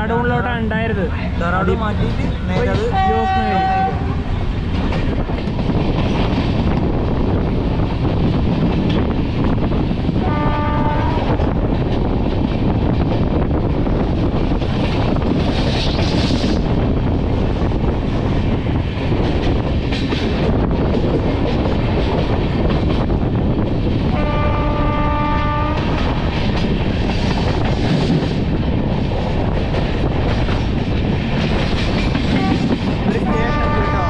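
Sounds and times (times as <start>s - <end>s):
train wheels rumbling on track: 0.0s - 34.0s
train horn: 2.9s - 4.2s, 10.2s - 11.5s, 24.1s - 26.0s, 32.3s - 34.0s.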